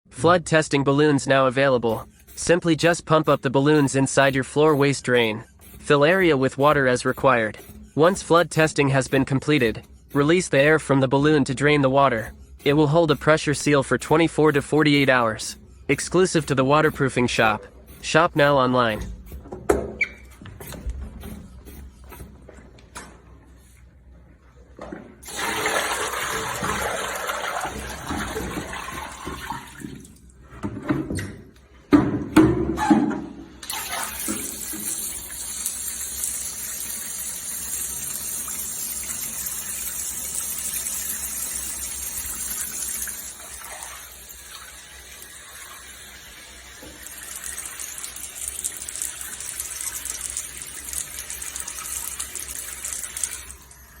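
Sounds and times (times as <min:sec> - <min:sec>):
water running and splashing: 0:25.2 - 0:30.1, 0:33.7 - 0:54.0.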